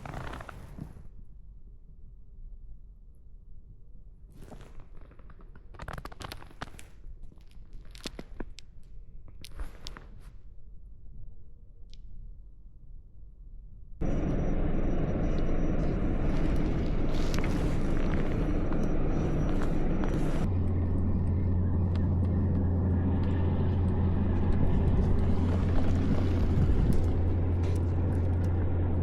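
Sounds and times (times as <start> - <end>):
motorboat engine running: 14.0 - 29.0
strong low hum: 14.0 - 29.0
wind: 14.0 - 29.0.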